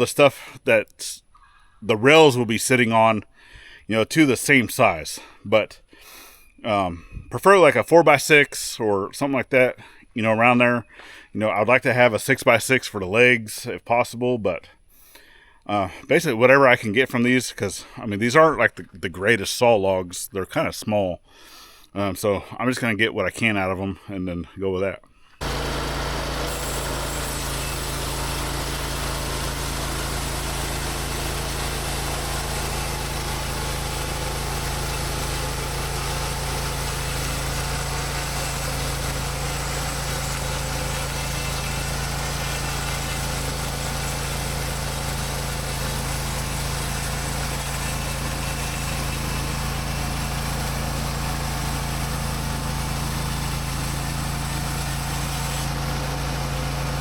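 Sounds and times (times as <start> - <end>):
sawmill engine running steadily: 25.4 - 57.0.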